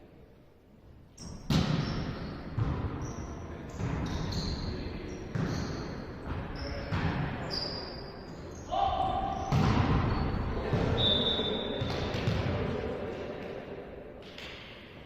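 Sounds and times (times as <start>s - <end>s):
shoes squeaking on court floor: 1.2s - 8.7s, 9.3s - 12.4s
volleyball being hit: 9.5s - 11.0s.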